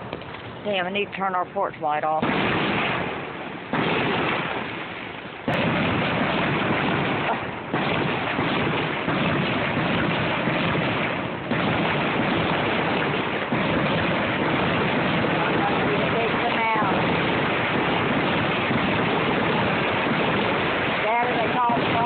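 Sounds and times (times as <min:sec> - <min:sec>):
fireworks blasts: 0:00.0 - 0:22.0
fireworks crackling: 0:00.0 - 0:22.0.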